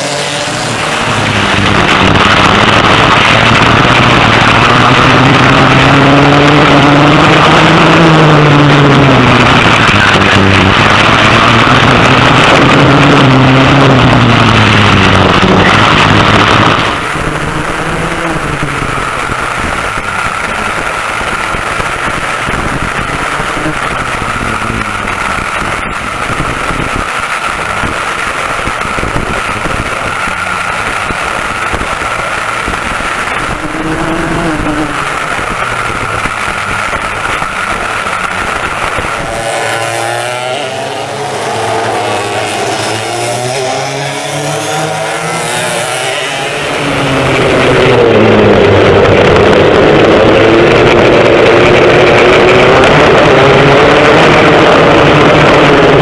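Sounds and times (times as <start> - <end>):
racing kart engine at speed: 0.0 - 56.0
wind noise: 0.0 - 56.0.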